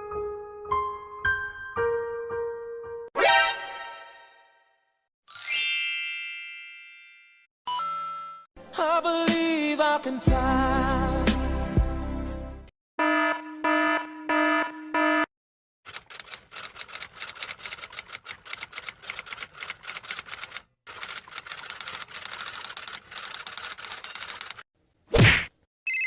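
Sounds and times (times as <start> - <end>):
rapid typewriter clacking: 15.9 - 24.6.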